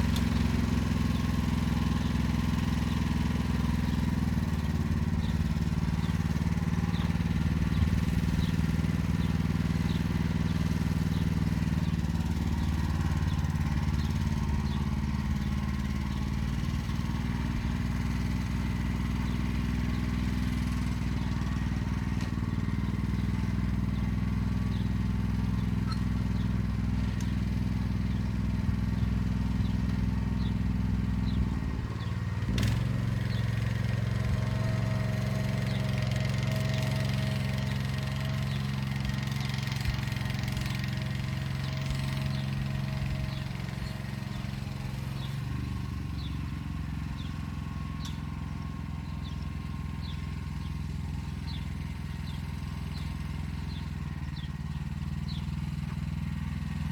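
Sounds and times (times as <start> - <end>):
tractor engine running under load: 0.0 - 56.9.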